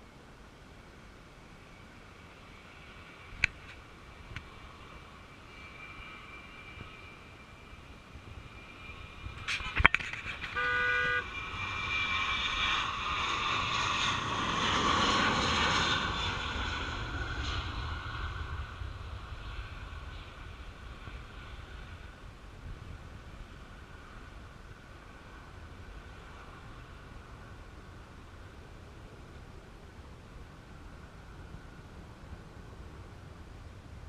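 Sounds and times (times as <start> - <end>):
jet engines passing: 0.0 - 34.0
short horn toot: 9.6 - 11.3.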